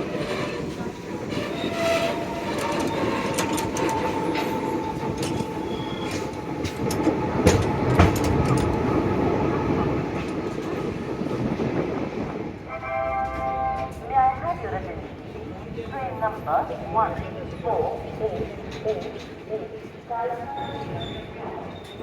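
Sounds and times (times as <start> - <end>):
train rumbling on track: 0.0 - 22.0
wheels clicking over rail joints: 0.1 - 9.2.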